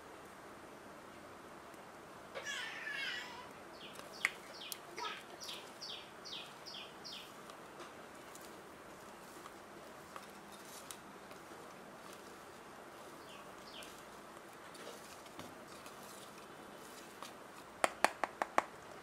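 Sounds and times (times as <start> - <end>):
bird calling and chirping: 3.8 - 7.3.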